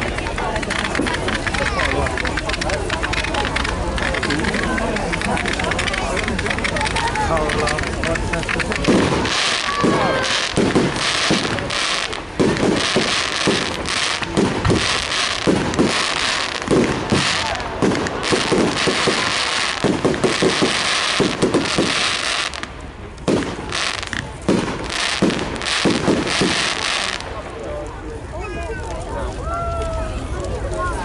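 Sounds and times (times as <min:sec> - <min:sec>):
fireworks crackling and banging: 0:00.0 - 0:31.0.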